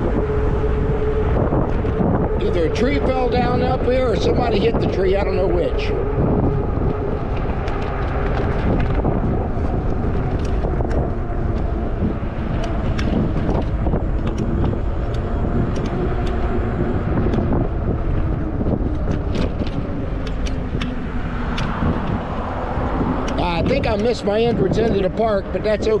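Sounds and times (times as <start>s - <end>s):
tire road noise: 0.0s - 26.0s
wind rumble: 0.0s - 26.0s
small clicks and rattles: 18.8s - 22.2s.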